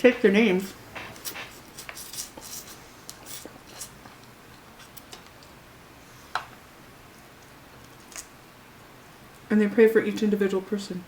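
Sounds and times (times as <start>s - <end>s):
crab shell crackling and clicking: 7.2s - 8.4s.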